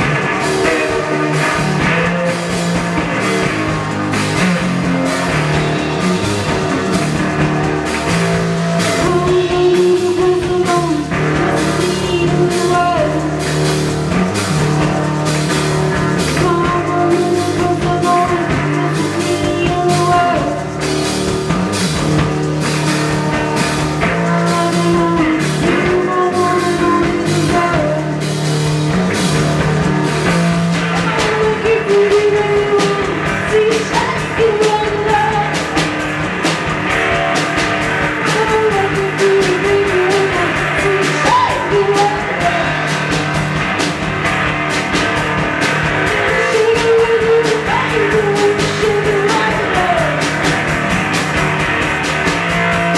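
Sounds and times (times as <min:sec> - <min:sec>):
drum kit beat: 0:00.0 - 0:52.9
electric guitar: 0:00.0 - 0:52.9
person singing: 0:08.8 - 0:13.7, 0:16.2 - 0:20.8, 0:24.0 - 0:28.3, 0:30.2 - 0:36.0, 0:38.2 - 0:43.4, 0:46.0 - 0:50.6.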